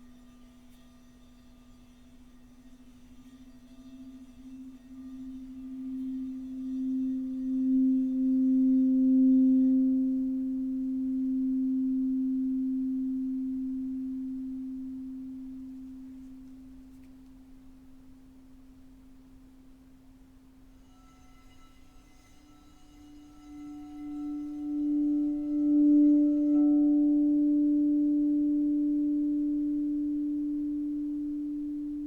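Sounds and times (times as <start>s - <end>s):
singing bowl low tone: 0.0s - 18.8s, 19.6s - 32.0s
higher ringing tones: 3.8s - 16.8s, 20.8s - 32.0s.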